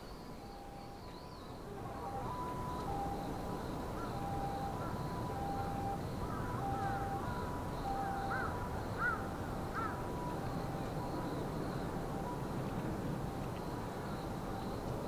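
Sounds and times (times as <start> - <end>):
low background noise: 0.0 - 15.0
bird calling: 1.9 - 11.4.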